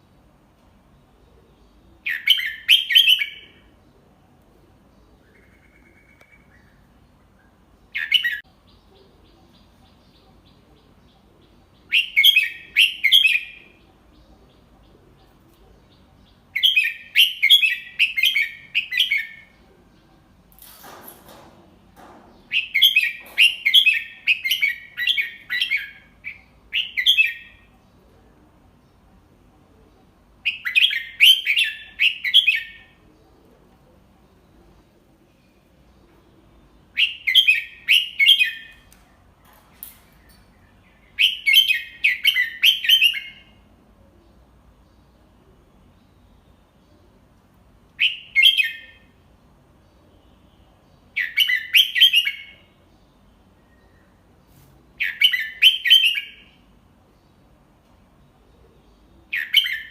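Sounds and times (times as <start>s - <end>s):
bird singing: 0.9s - 20.5s, 21.8s - 54.4s, 55.0s - 59.9s
soft rustle: 54.4s - 55.0s.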